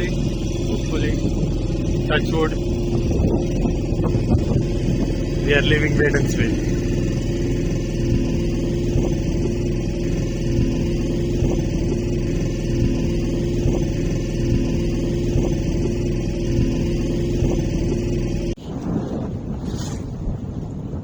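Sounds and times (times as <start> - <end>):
boat motor humming: 0.0 - 18.6.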